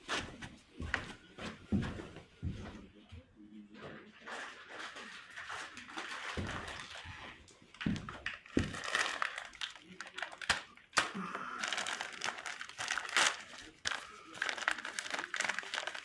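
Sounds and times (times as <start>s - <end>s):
plastic packaging crinkling and tearing: 5.4s - 16.0s.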